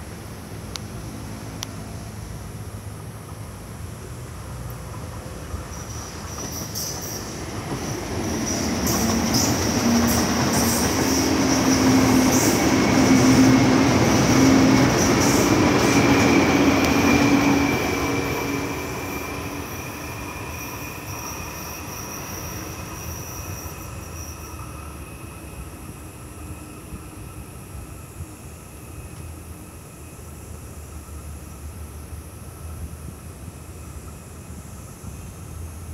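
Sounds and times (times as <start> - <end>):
train rail rumble: 0.0 - 35.9
wheel and rail whistling: 5.5 - 31.4.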